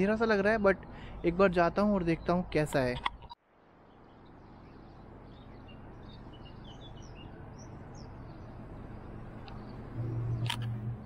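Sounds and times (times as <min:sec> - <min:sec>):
outdoor background hiss: 0:00.0 - 0:11.0
small birds chirping: 0:00.0 - 0:11.0
low hum: 0:03.6 - 0:11.0.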